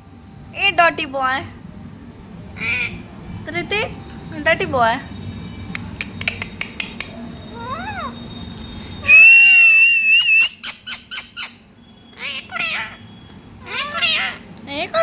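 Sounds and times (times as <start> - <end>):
parrot calling and whistling: 2.6 - 3.0, 5.7 - 14.5
parrot sharp chirps: 5.7 - 14.4.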